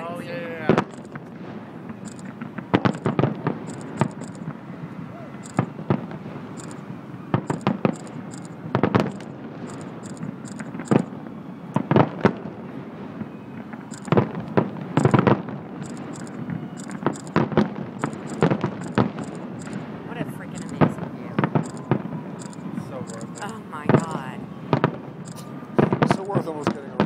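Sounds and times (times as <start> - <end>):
firework shells bursting: 0.7 - 1.3, 2.0 - 4.6, 6.7 - 11.0, 14.0 - 20.0.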